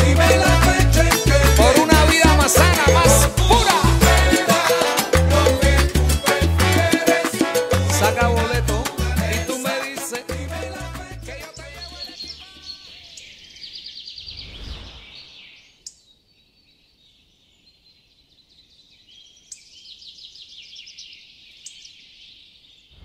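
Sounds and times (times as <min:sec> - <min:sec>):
birds chirping and trilling: 0:11.4 - 0:23.0
soft whoosh: 0:14.2 - 0:15.6.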